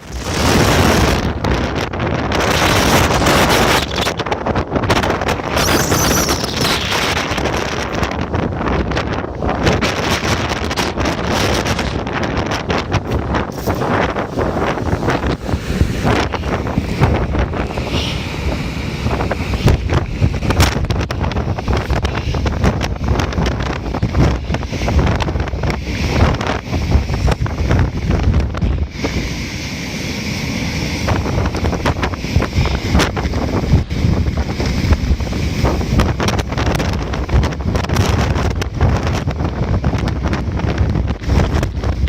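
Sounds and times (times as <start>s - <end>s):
wind buffeting microphone: 0.0s - 42.0s
waterfall spray rushing: 13.0s - 22.7s.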